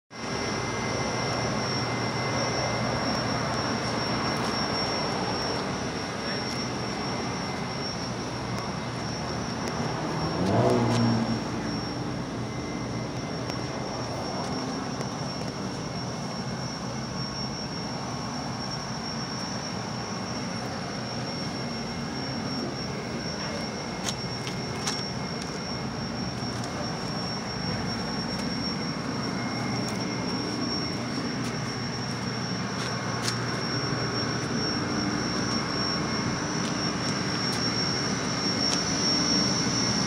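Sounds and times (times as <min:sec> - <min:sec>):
car engine idling and revving: 0:00.2 - 0:40.0.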